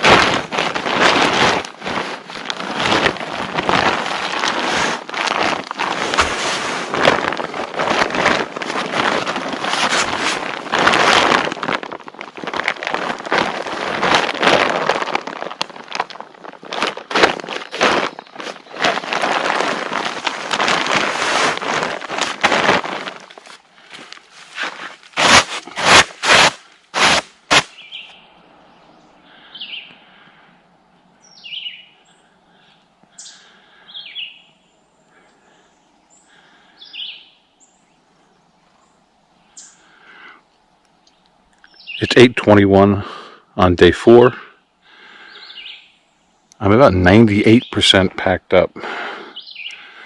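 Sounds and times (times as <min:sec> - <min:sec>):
bird chirping downward-sliding: 0:17.4 - 0:20.0, 0:27.6 - 0:30.0, 0:31.1 - 0:39.9, 0:41.0 - 0:42.1, 0:45.3 - 0:46.5, 0:49.4 - 0:49.8.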